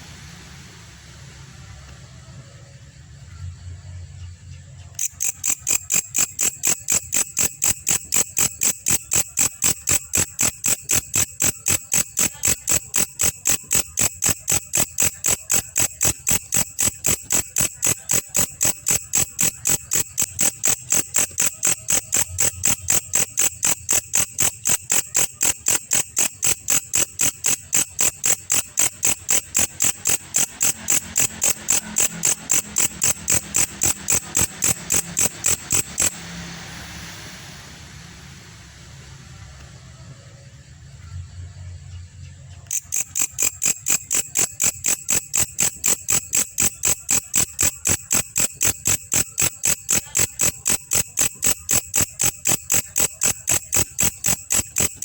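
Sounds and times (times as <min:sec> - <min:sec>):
katydid chirping: 0:04.9 - 0:36.4, 0:42.6 - 0:55.0.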